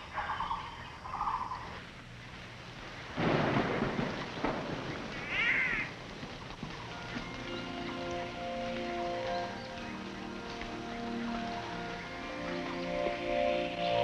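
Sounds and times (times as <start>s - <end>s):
birds calling harshly: 0.0s - 2.4s, 6.8s - 14.0s.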